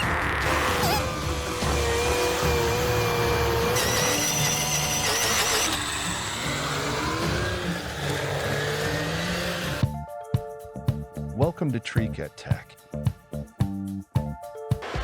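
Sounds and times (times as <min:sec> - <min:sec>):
heavy machinery engines running: 0:00.0 - 0:09.8.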